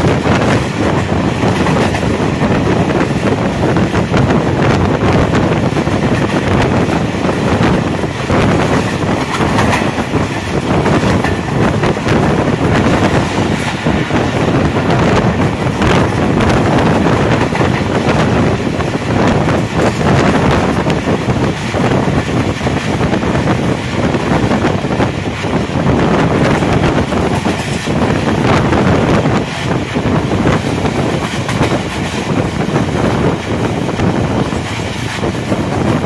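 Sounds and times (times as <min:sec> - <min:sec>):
train wheels clattering on track: 0:00.0 - 0:36.0
wind buffeting microphone: 0:00.0 - 0:36.0.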